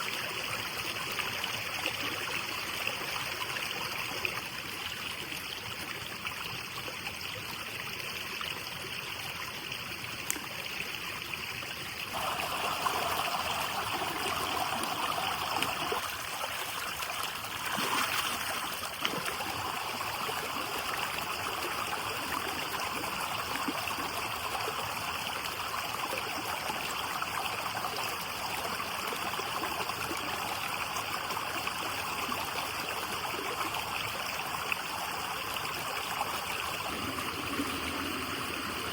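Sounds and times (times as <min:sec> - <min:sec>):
running water rushing: 0:12.0 - 0:38.9.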